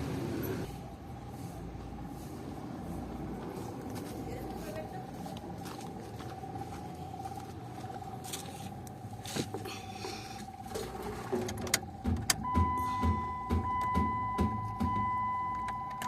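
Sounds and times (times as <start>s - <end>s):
car warning chime: 12.3s - 16.0s.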